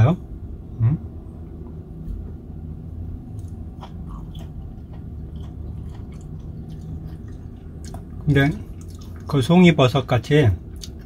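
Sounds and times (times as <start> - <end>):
low hum: 0.0 - 11.0
person chewing: 3.3 - 9.4, 10.6 - 11.0.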